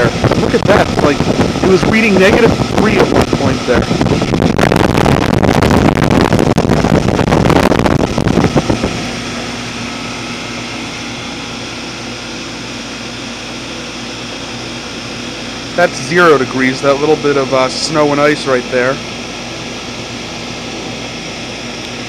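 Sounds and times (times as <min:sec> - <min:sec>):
loud gusty rushing: 0:00.0 - 0:13.4
heat pump compressor and fan hum: 0:00.0 - 0:22.0.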